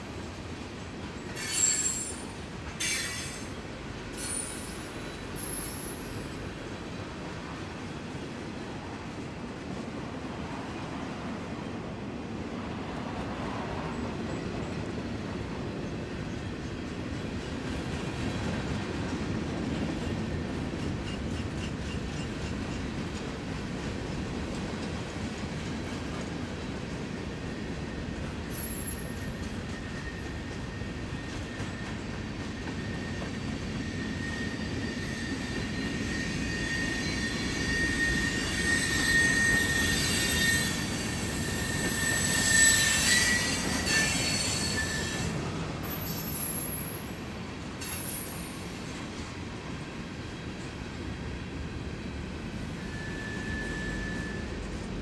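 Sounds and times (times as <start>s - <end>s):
freight train cars rumbling: 0.0s - 55.0s
high wheel squeal: 1.3s - 6.5s, 27.5s - 47.2s, 47.8s - 49.0s, 52.4s - 54.8s.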